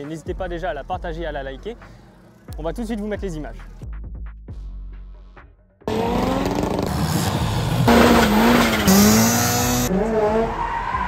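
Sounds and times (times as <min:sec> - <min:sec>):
car engines revving: 0:05.8 - 0:11.0.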